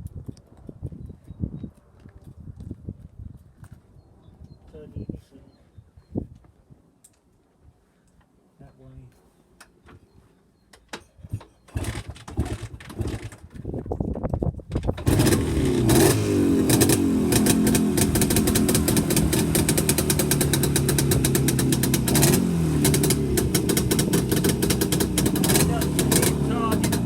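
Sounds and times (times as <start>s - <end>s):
motorcycle engine starting and revving: 11.5s - 13.8s, 14.7s - 27.0s.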